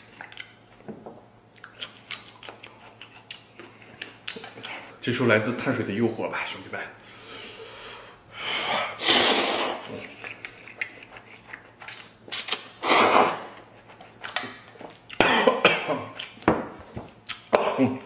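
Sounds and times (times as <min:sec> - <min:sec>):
noodles being slurped: 0:09.0 - 0:13.7.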